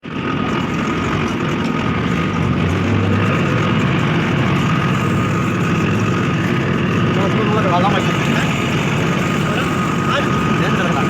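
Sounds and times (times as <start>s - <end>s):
tractor diesel engine running: 0.0s - 11.0s
thin high whine: 0.4s - 11.0s.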